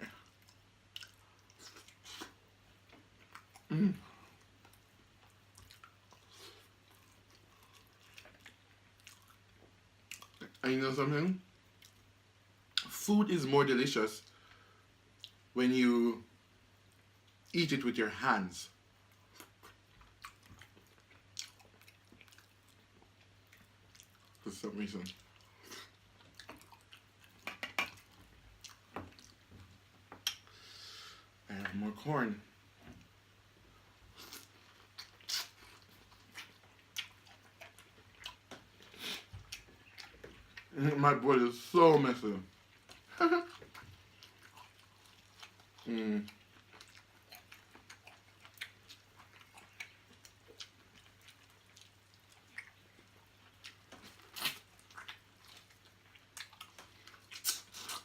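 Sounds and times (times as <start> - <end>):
chewing and wet mouth sounds: 0.0 - 10.7, 11.5 - 13.0, 14.2 - 15.5, 18.7 - 30.6, 33.7 - 58.0
mouth clicks and smacks: 25.0 - 29.4, 30.1 - 30.5, 34.2 - 40.8, 42.8 - 58.0.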